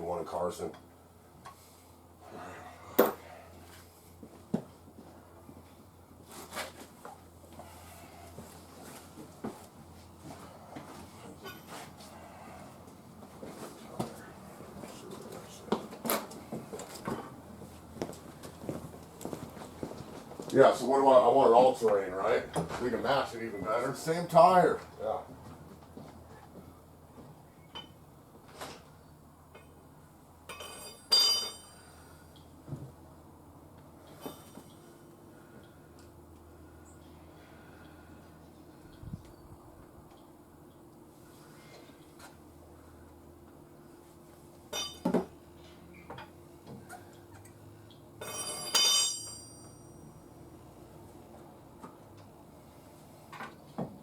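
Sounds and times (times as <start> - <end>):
ringing metallic clink: 30.5 - 31.9, 44.7 - 45.1, 48.2 - 50.2.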